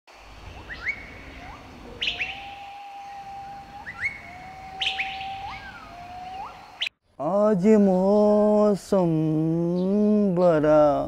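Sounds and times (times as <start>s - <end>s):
long whistled bird notes: 0.2s - 7.0s
short upward-sweeping bird chirps: 0.4s - 7.0s.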